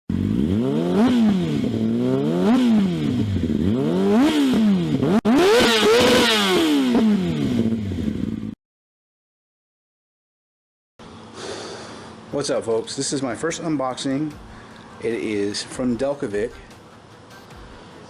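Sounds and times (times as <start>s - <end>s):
motorcycle engine revving: 0.1s - 8.6s, 14.3s - 18.0s.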